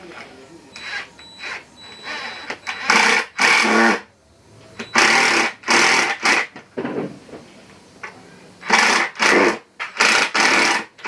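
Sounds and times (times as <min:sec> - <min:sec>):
power drill short bursts: 0:00.8 - 0:04.0, 0:04.8 - 0:06.5, 0:08.6 - 0:11.0.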